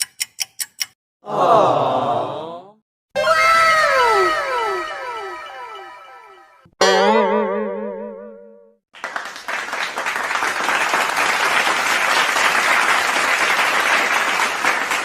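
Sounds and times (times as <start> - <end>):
wobbling pitched note: 3.2 - 8.7
crowd applause: 9.0 - 15.0.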